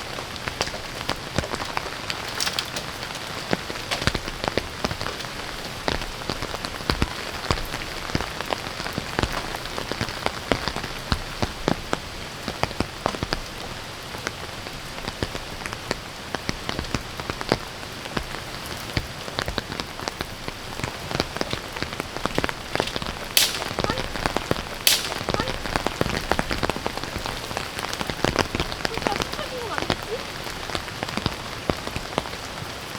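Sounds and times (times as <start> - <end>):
rain pattering: 0.0 - 32.9.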